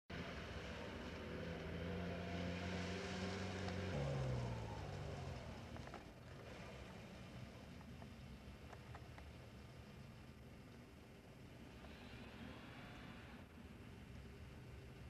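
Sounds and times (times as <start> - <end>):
off-road vehicle engine: 0.1 - 15.0
faint clicks: 5.4 - 10.9, 11.6 - 13.5.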